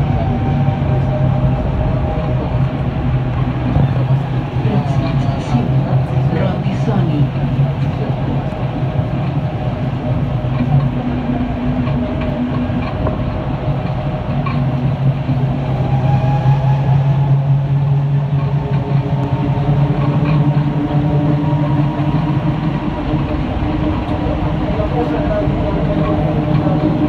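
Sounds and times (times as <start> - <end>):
metro train rolling noise: 0.0 - 27.0
train motor tones: 7.7 - 27.0.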